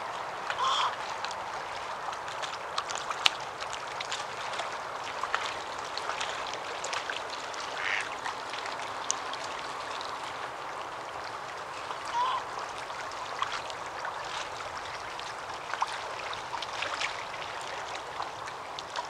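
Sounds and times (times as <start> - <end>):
duck quacking: 0.6 - 0.9, 7.8 - 8.0, 12.2 - 12.4.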